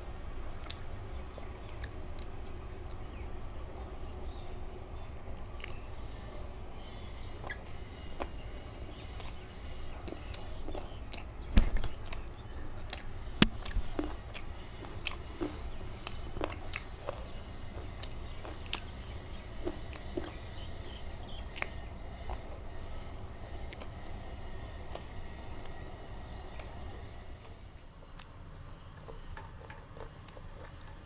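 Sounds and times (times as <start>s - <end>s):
mouth clicks and chewing: 0.4s - 3.2s, 5.2s - 6.0s, 7.4s - 24.0s, 29.1s - 31.0s.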